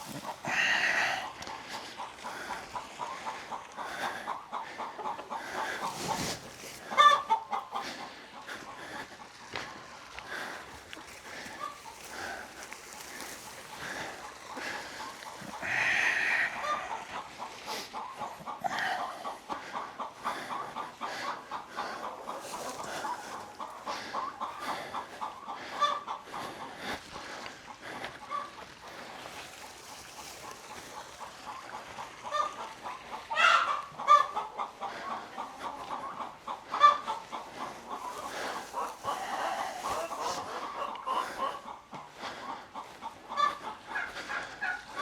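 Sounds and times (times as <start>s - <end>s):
chickens clucking: 0.0s - 45.0s
chicken squawk: 4.8s - 7.8s, 15.5s - 19.8s, 32.2s - 41.8s.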